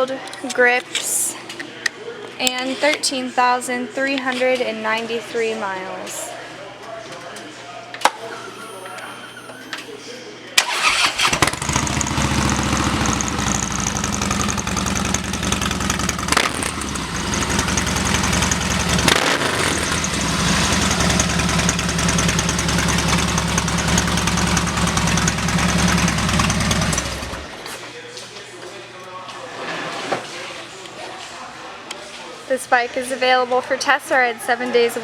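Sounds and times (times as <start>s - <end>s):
motorcycle engine idling: 10.8s - 27.6s.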